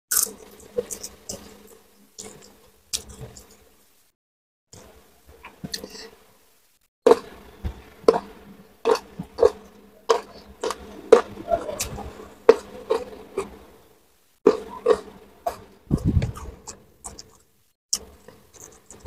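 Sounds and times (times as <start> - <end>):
crunchy food chewing: 0.1 - 3.6, 14.5 - 19.0.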